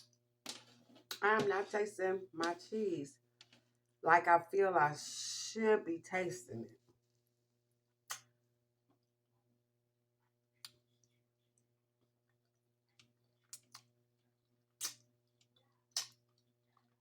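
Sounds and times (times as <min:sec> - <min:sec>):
mouth clicks and smacks chewing: 0:12.9 - 0:14.0, 0:14.8 - 0:17.0.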